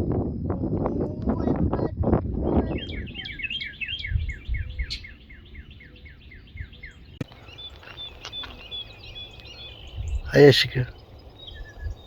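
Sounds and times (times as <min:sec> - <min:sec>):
songbird singing: 0:00.0 - 0:12.0
higher bird chirps: 0:02.4 - 0:12.0.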